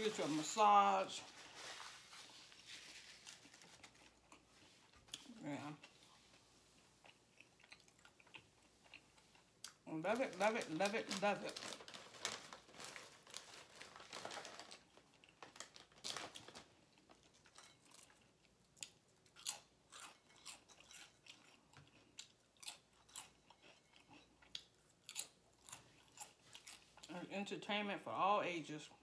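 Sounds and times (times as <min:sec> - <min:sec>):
person chewing with wet mouth clicks: 0:07.0 - 0:09.8.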